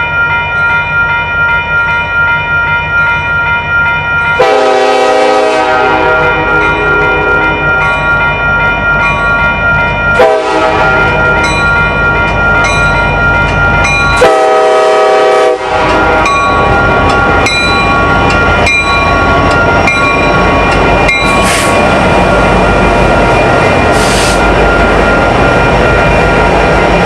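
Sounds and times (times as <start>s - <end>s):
train rumble: 0.0s - 27.0s
locomotive horn chords: 4.4s - 7.6s, 10.2s - 11.2s, 14.2s - 16.3s.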